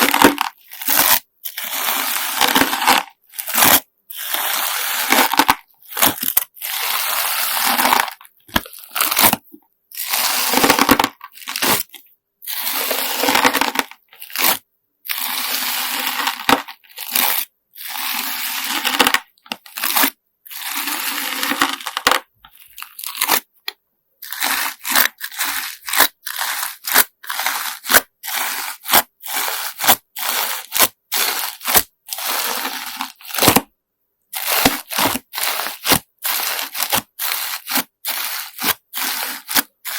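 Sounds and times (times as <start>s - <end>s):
slime with sand squished by hand: 24.2s - 33.5s, 34.4s - 39.9s.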